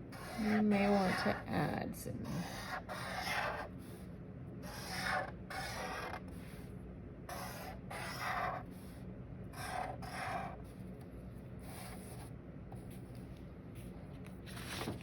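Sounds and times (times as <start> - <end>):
faint low hum: 0.0 - 15.0
drawing tool scratching paper: 0.1 - 1.5, 2.2 - 4.0, 4.6 - 6.6, 7.3 - 10.6, 11.6 - 12.3.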